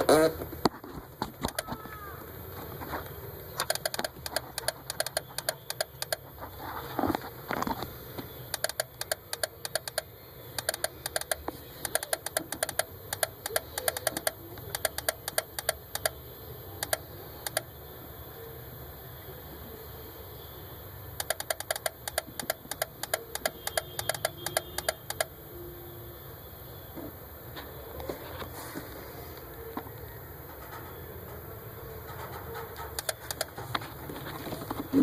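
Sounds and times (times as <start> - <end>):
turn-signal flasher clicking: 1.4 - 1.8, 3.6 - 6.2, 8.5 - 16.2, 16.8 - 17.7, 21.2 - 25.3, 32.8 - 33.8.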